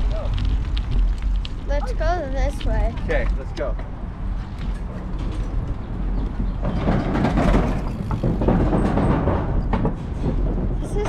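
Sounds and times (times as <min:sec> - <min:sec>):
bicycle tyre noise: 0:00.0 - 0:11.0
wind buffeting microphone: 0:00.0 - 0:11.0
bike knocks and rattles: 0:03.0 - 0:11.0.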